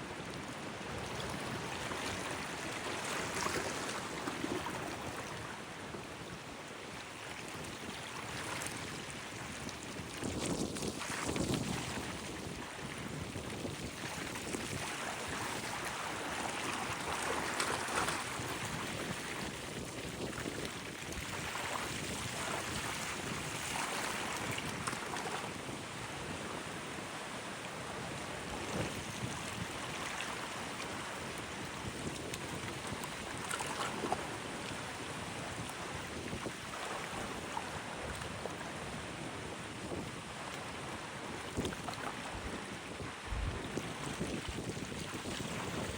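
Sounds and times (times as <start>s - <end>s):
wind buffeting microphone: 35.0s - 45.9s.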